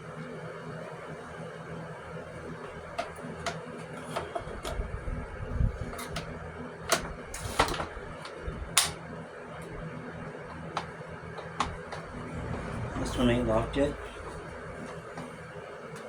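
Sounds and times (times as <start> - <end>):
low steady hum: 2.0 - 16.0.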